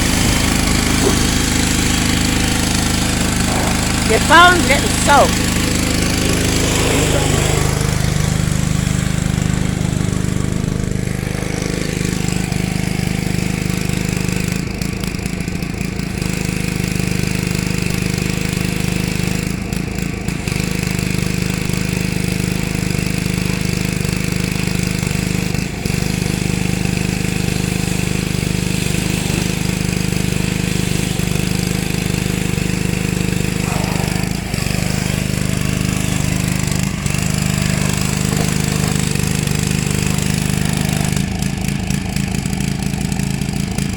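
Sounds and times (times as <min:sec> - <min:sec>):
water spray hiss: 0:00.0 - 0:08.8, 0:25.1 - 0:41.2
pressure washer engine running: 0:00.0 - 0:43.9.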